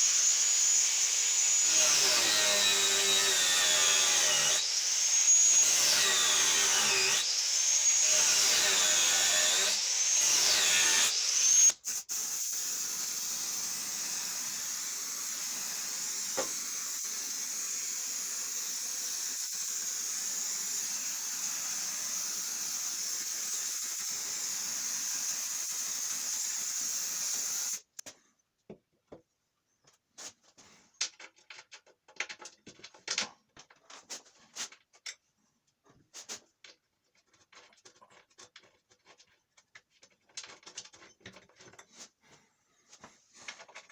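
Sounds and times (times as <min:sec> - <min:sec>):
power tool motor whining: 0:00.0 - 0:27.9.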